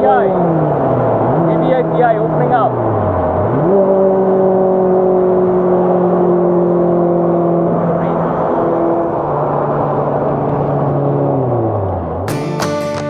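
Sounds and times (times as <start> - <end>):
car engine revving: 0.0 - 12.6.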